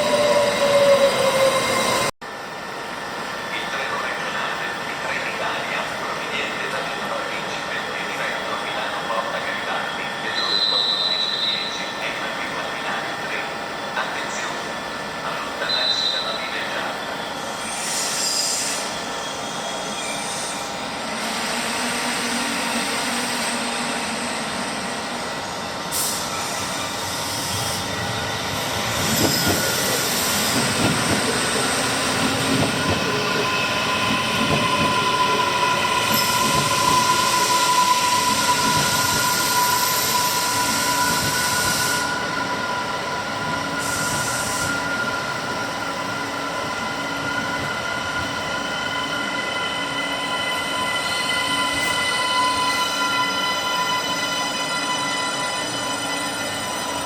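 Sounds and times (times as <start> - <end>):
train running noise: 20.2 - 57.0.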